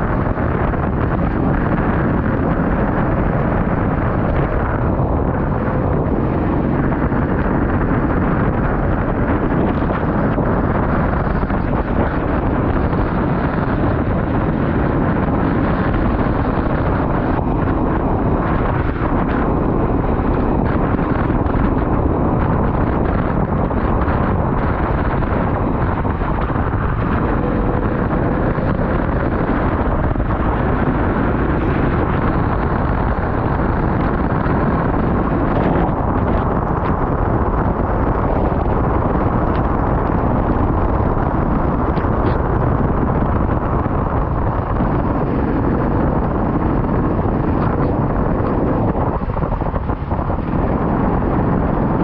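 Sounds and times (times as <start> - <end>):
off-road vehicle rumbling: 0.0 - 52.0
wind buffeting microphone: 0.0 - 52.0.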